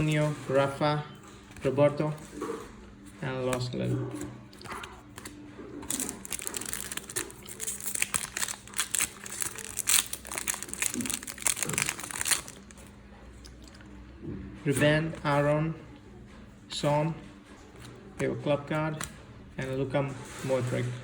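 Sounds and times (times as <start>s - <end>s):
foil packet crinkling: 4.7s - 12.9s.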